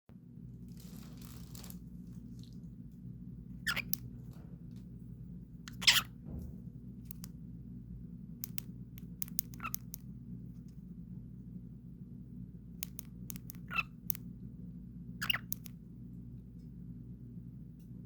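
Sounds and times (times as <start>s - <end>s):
steady low hum: 0.1s - 18.0s
cockatiel harsh chirps: 3.6s - 4.0s, 5.7s - 6.1s, 13.5s - 14.0s, 15.2s - 15.6s
sharp clicks: 7.0s - 7.4s, 8.4s - 10.1s, 12.8s - 14.3s.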